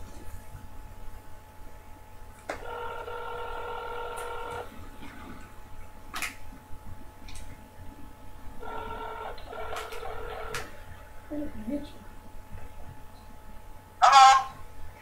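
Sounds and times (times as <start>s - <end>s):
telephone ringback tone: 2.6s - 4.7s, 8.6s - 10.7s.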